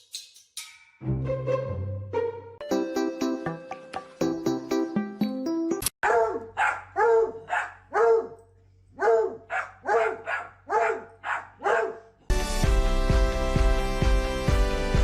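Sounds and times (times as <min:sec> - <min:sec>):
dog barking: 0:06.0 - 0:08.4, 0:09.0 - 0:12.2.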